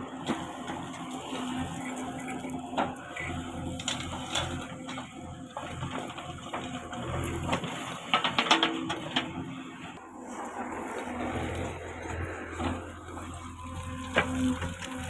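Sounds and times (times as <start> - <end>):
backhoe diesel engine hum: 0.0 - 15.0
machine knocks and clatter: 5.6 - 9.5.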